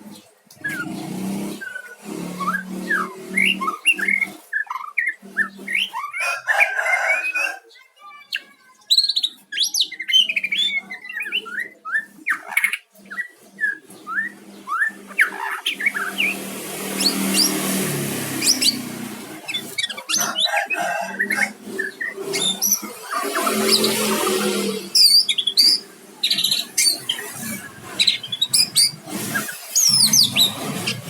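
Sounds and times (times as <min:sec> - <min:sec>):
songbird whistling and chirping: 0:01.6 - 0:06.2, 0:08.3 - 0:16.4, 0:24.9 - 0:31.0.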